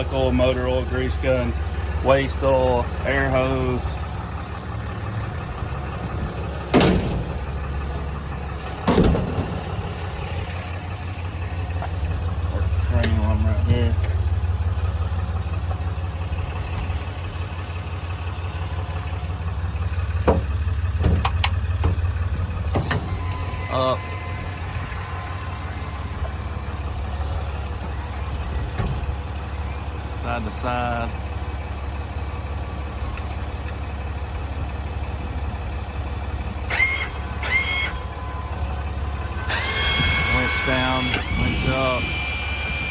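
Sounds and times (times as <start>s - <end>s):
crane motor whine: 0.0s - 42.9s
engine idling: 0.0s - 42.9s
sharp clicks and knocks: 20.2s - 22.0s.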